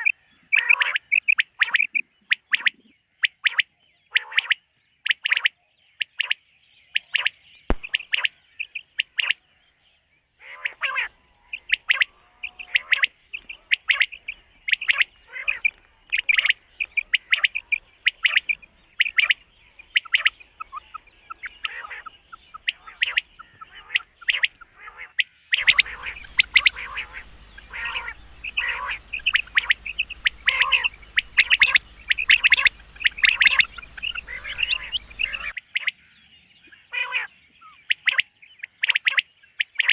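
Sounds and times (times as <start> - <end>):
quail calling: 0.0 - 5.5, 7.0 - 9.4, 10.4 - 36.0
steady hiss and low hum: 11.1 - 24.2, 25.6 - 35.6.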